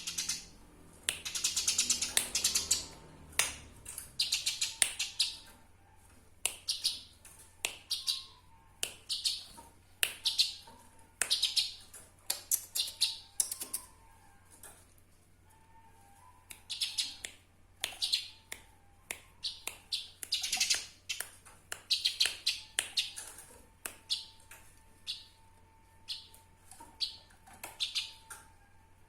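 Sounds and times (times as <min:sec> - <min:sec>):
sparrows chirping: 0:00.0 - 0:03.3, 0:04.0 - 0:05.5, 0:06.6 - 0:07.1, 0:07.8 - 0:08.4, 0:09.0 - 0:09.5, 0:10.2 - 0:10.7, 0:11.3 - 0:11.9, 0:12.5 - 0:13.9, 0:16.7 - 0:17.2, 0:19.4 - 0:21.2, 0:21.9 - 0:23.4, 0:26.0 - 0:28.3.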